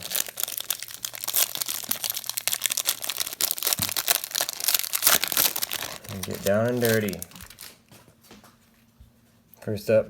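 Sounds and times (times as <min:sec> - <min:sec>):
wrapper crinkling and tearing: 0:00.0 - 0:07.8.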